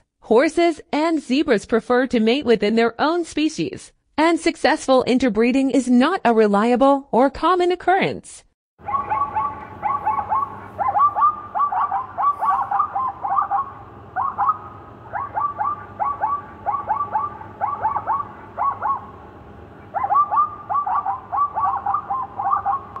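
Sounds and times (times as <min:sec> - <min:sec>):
bird whistling calls: 0:08.9 - 0:19.2, 0:19.9 - 0:23.0.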